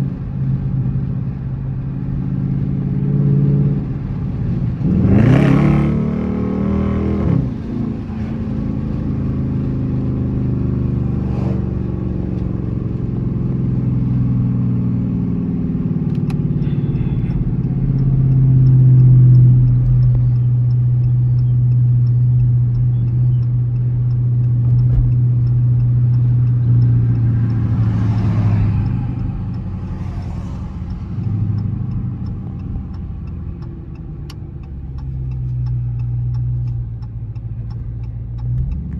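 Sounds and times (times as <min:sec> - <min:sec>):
car engine revving and droning: 0:00.0 - 0:38.9
faint rapid ticking: 0:16.2 - 0:38.9.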